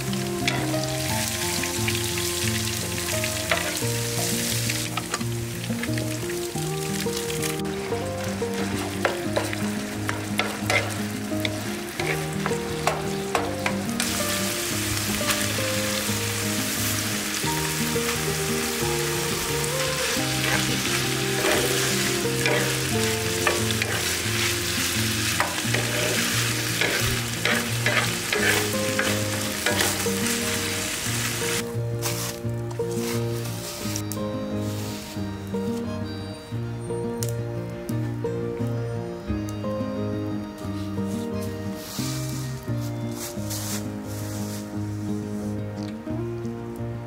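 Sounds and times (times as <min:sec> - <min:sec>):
meat sizzling in a pan: 0:00.0 - 0:32.4
soft background music: 0:00.0 - 0:47.0
wooden spatula scraping a pan: 0:08.6 - 0:15.7, 0:18.1 - 0:34.0, 0:43.1 - 0:45.2.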